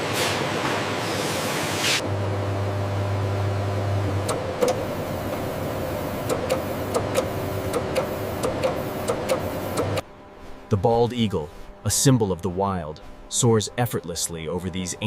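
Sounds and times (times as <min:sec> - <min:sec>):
factory machinery humming: 0:00.0 - 0:15.0
sharp mechanical clicks: 0:06.2 - 0:10.0.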